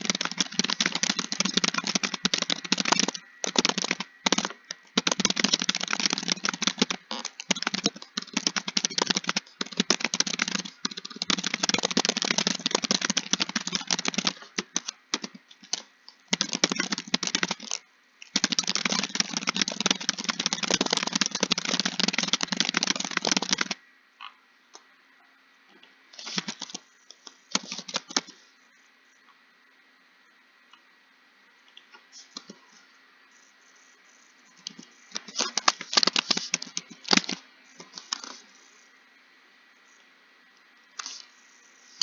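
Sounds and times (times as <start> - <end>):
typing on a computer keyboard: 0.0 - 23.8, 26.2 - 28.4, 34.7 - 38.4.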